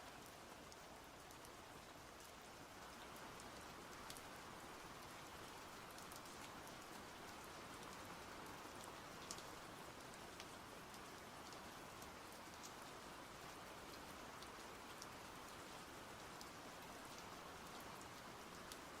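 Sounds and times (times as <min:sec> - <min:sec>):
faint rain falling: 0:00.0 - 0:19.0.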